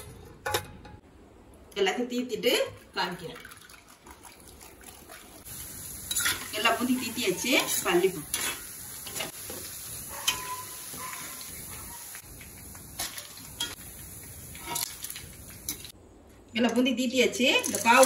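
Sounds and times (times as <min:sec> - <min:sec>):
batter sizzling in hot oil: 0:05.4 - 0:16.0.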